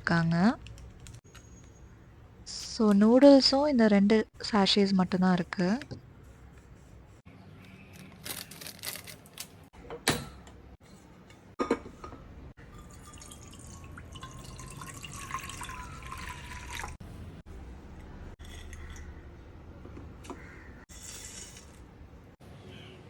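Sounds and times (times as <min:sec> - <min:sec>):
kitchen utensils clattering: 0:11.4 - 0:13.2
water running into a pot: 0:12.6 - 0:17.0.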